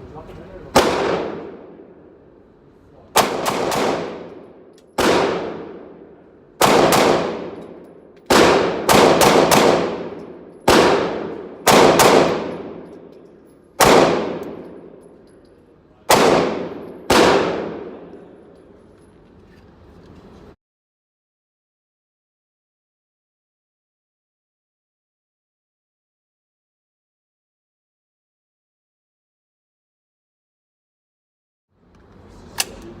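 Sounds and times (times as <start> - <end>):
pistol shots with ringing echo: 0.7 - 2.0, 3.1 - 15.4, 16.1 - 18.7.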